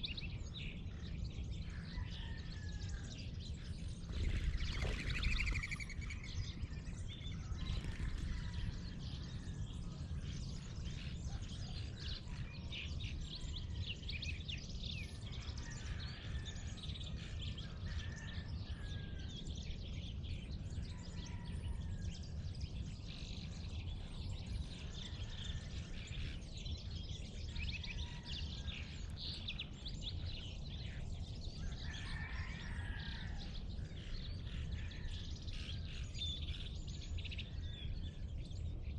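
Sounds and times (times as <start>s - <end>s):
small birds chirping and trilling: 0.0s - 38.9s
steady low rumble: 3.0s - 13.6s.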